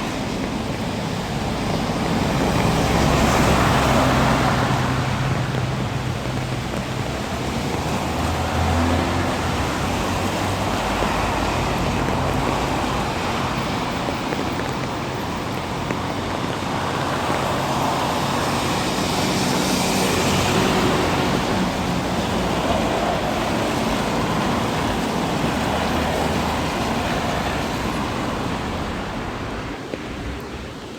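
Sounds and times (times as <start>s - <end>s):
low hum of engines: 0.0s - 29.8s
road traffic hiss: 0.0s - 30.9s
vehicle passing: 1.5s - 14.1s, 16.0s - 30.4s.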